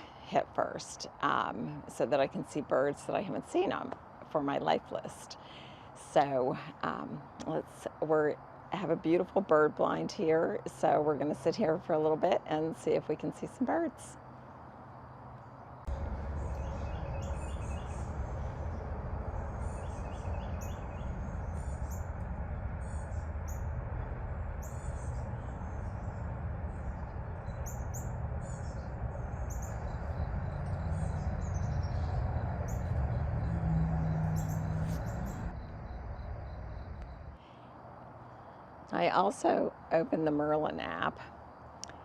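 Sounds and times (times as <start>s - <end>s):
highway traffic rumble: 0.0s - 42.0s
small birds chirping: 14.6s - 37.7s
steady hum: 15.8s - 39.6s.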